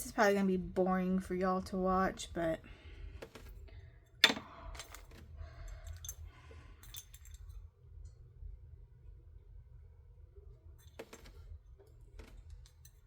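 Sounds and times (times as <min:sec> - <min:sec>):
plastic tools clicking and clinking: 0:04.2 - 0:05.2.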